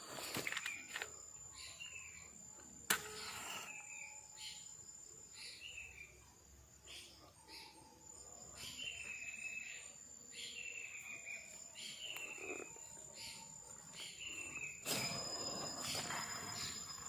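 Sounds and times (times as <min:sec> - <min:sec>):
high insect whine: 0:00.0 - 0:17.0.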